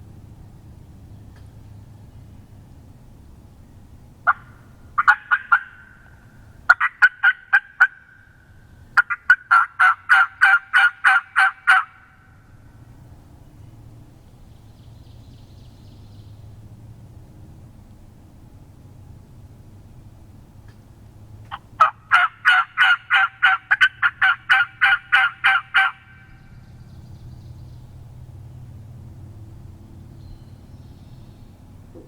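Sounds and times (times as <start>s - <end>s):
wild turkey yelping: 4.2s - 8.3s, 9.0s - 12.3s, 21.5s - 26.4s.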